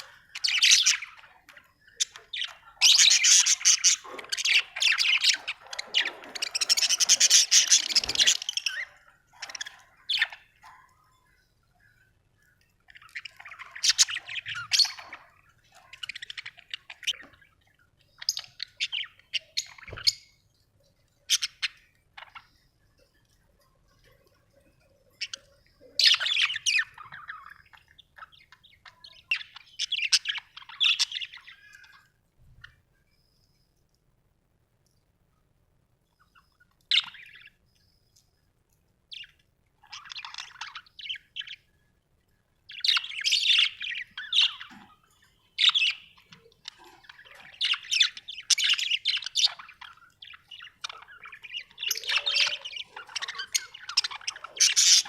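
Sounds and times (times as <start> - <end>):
budgerigars chattering and chirping: 0.0 - 10.8, 12.8 - 17.6, 21.3 - 22.5, 25.1 - 32.0, 39.1 - 41.7, 42.7 - 55.0.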